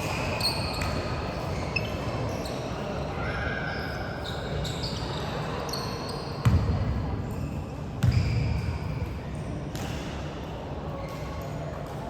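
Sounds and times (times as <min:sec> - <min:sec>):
sneakers squeaking on court: 0:00.0 - 0:03.0, 0:03.8 - 0:09.1.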